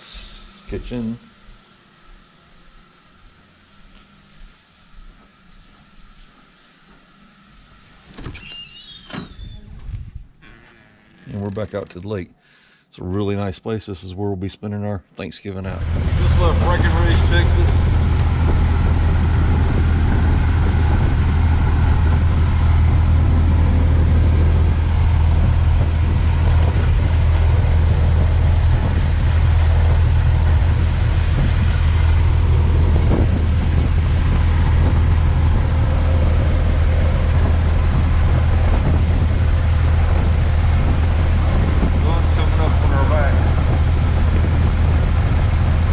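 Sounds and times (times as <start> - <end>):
car engine low rumble: 15.7 - 45.9
road and wind noise: 15.8 - 45.9.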